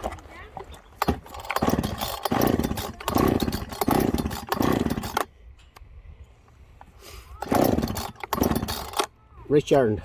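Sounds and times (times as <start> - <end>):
chainsaw pull-start attempts: 0.0 - 5.4, 7.4 - 9.2.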